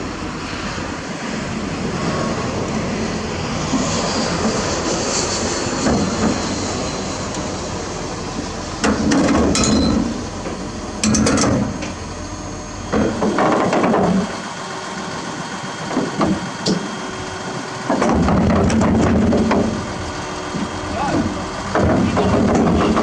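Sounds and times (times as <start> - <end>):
heavy machinery rumbling: 0.0 - 23.0
steady engine: 0.0 - 23.0
metal clanks and knocks: 8.8 - 12.0, 12.9 - 14.3, 17.9 - 19.8, 20.6 - 23.0.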